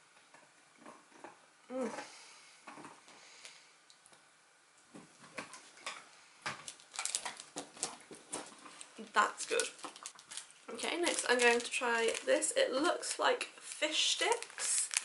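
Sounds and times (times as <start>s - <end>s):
person humming: 1.7s - 2.2s.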